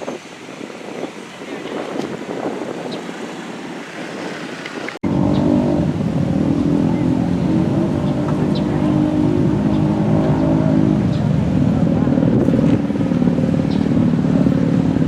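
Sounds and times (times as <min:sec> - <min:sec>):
wind: 0:00.0 - 0:15.0
motorcycle engine running: 0:05.0 - 0:15.0.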